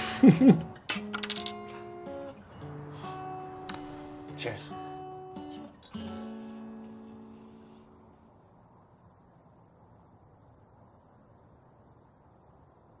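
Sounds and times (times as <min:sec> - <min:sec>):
crickets chirping: 0:00.0 - 0:13.0
plucked guitar chord ringing: 0:00.8 - 0:07.6.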